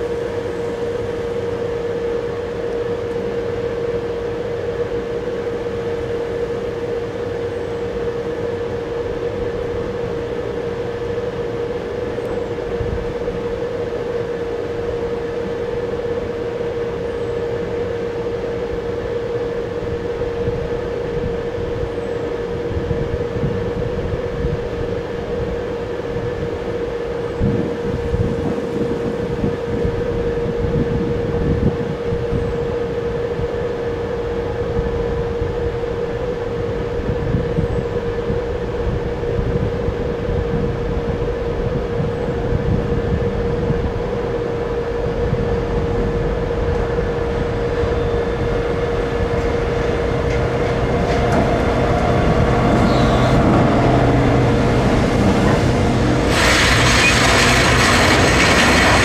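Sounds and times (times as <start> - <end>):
freight train rumbling on rails: 0.0 - 59.0
steady tone: 43.2 - 59.0
wheel-on-rail rushing noise: 44.7 - 59.0.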